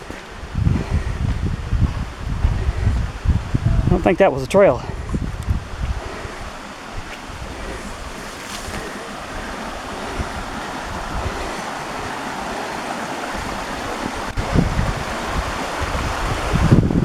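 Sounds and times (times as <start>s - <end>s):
wind buffeting microphone: 0.0s - 17.0s
waterfall rushing: 5.6s - 17.0s.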